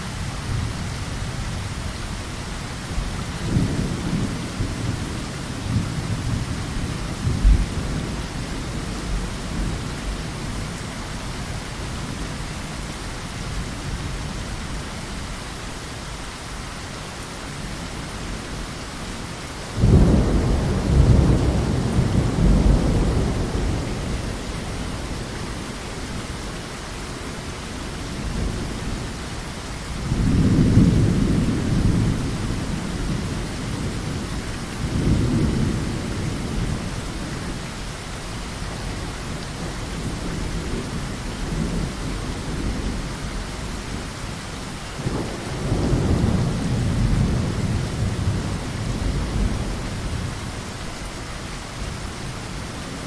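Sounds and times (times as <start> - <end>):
heavy rain: 0.0 - 53.0
rolling thunder: 3.4 - 10.4, 19.8 - 25.7, 30.0 - 37.6, 44.9 - 50.6
thunderclap: 45.0 - 49.6.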